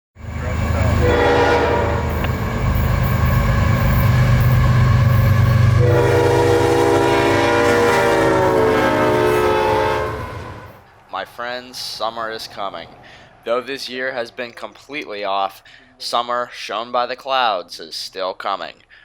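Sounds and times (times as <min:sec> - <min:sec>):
diesel locomotive engine rumbling: 0:00.2 - 0:11.0
locomotive multi-tone horn blasts: 0:00.4 - 0:10.8.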